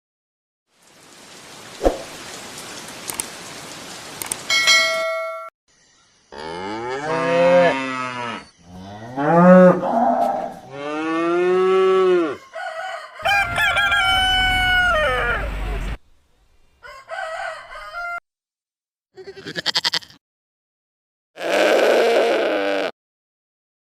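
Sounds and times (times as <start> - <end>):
cow mooing: 6.4 - 12.4.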